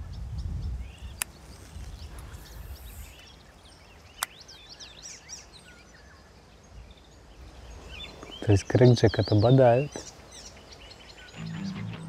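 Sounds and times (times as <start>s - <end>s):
small birds chirping: 0.0s - 12.0s
low rumble: 11.4s - 12.0s.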